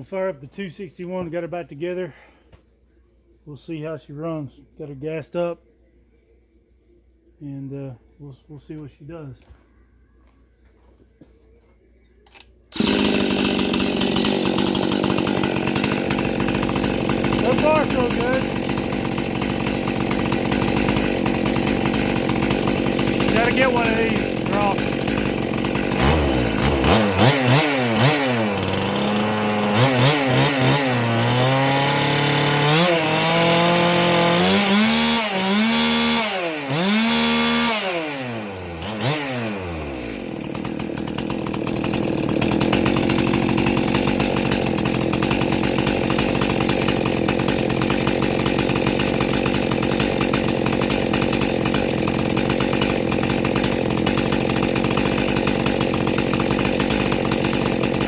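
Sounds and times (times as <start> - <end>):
chainsaw engine revving and idling: 12.7 - 58.0.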